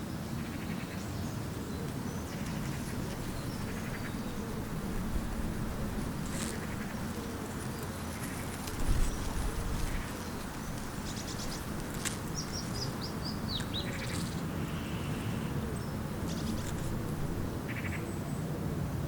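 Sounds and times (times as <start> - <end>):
small birds chirping: 0.4 - 18.4
low background rumble: 1.1 - 17.8.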